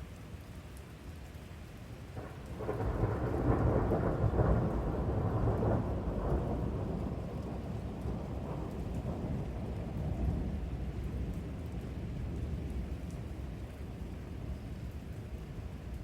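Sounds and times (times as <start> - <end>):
thunder rumbling: 2.2 - 13.3.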